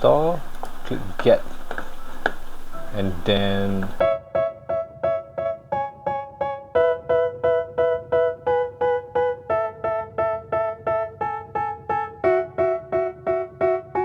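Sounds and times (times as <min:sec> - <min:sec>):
short keyboard chords: 0:00.0 - 0:04.2.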